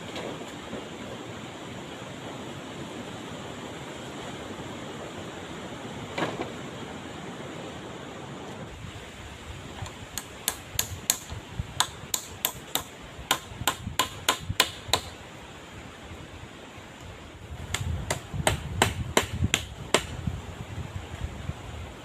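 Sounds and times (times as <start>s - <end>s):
steady background hiss: 0.0s - 22.0s
sharp hammer strikes: 10.2s - 15.2s, 17.7s - 20.2s.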